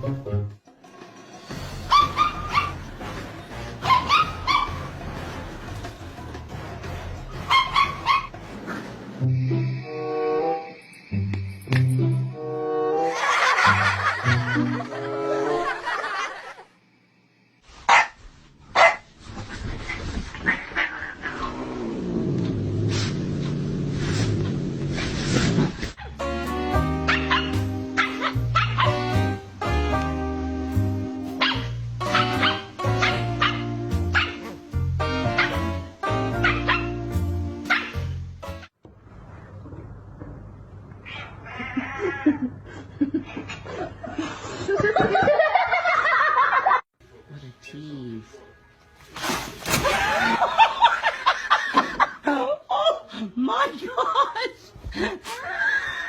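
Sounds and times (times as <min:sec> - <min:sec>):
dog barking: 0:01.9 - 0:02.9, 0:03.8 - 0:04.9, 0:07.5 - 0:08.3, 0:17.9 - 0:18.2, 0:18.8 - 0:19.1, 0:27.0 - 0:29.1, 0:31.4 - 0:34.5, 0:36.4 - 0:37.0, 0:37.7 - 0:38.0.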